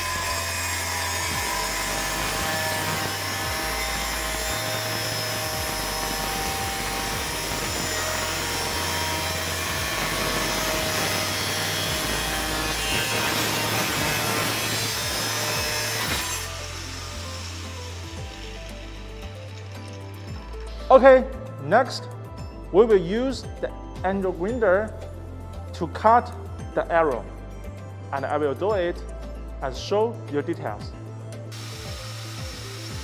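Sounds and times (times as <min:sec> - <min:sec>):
angle grinder cutting metal: 0:00.0 - 0:20.9, 0:31.5 - 0:33.0.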